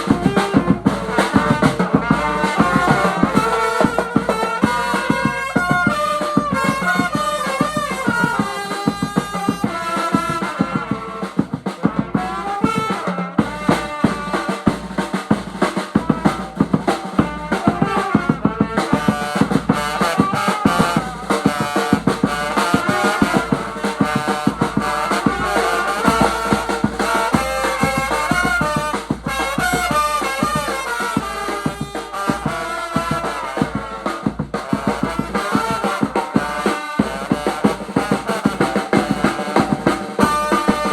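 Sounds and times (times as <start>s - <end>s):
drum kit beat: 0.0s - 40.9s
wavering brass melody: 0.0s - 40.9s.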